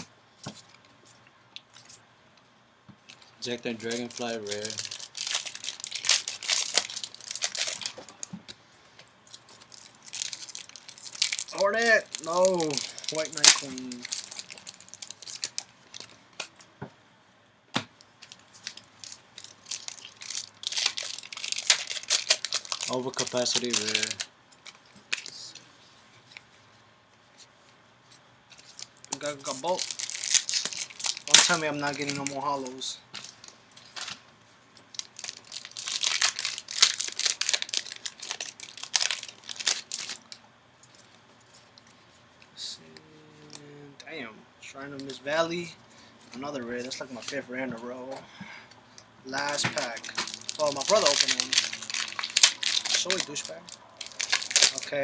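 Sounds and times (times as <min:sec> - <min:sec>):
foil crinkling: 0:03.1 - 0:08.3, 0:09.3 - 0:16.2, 0:18.2 - 0:25.6, 0:28.6 - 0:34.2, 0:34.9 - 0:41.1, 0:49.4 - 0:55.0
cards clicking and rustling: 0:49.4 - 0:53.5.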